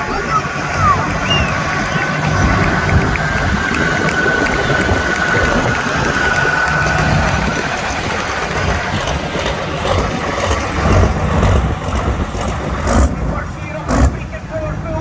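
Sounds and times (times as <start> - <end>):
loud low engine running: 0.0 - 15.0.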